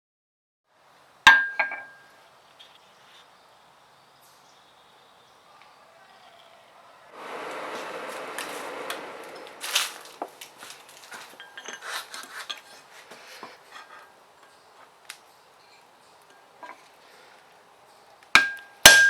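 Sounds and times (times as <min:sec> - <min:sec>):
steady hiss: 0:02.0 - 0:18.2
steel tools clinking: 0:10.7 - 0:13.1, 0:15.6 - 0:17.0.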